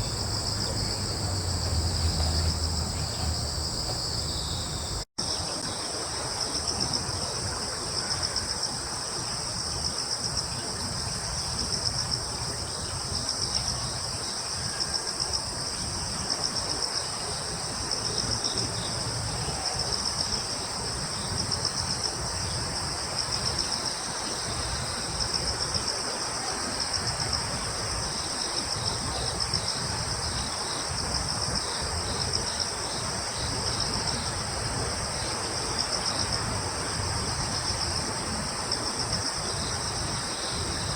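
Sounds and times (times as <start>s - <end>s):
low steady rumble: 0.0s - 5.0s
crickets and insects trilling: 0.0s - 40.9s.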